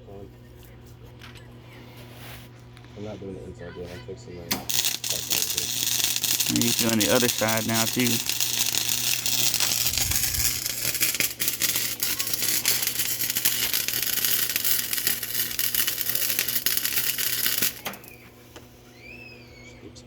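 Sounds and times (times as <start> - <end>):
welding arc crackling: 4.5 - 18.8.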